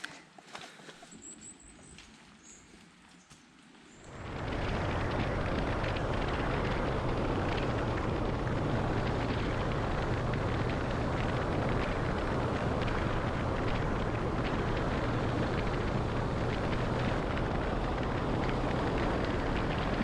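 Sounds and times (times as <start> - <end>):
motorcycle engine running: 4.0 - 20.0
wind noise on microphone: 4.0 - 20.0.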